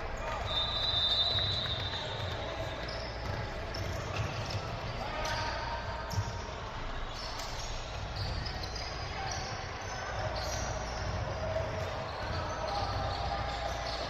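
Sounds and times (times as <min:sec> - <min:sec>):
sneakers squeaking on floor: 0:00.2 - 0:14.0
basketball bouncing on court: 0:01.3 - 0:04.9.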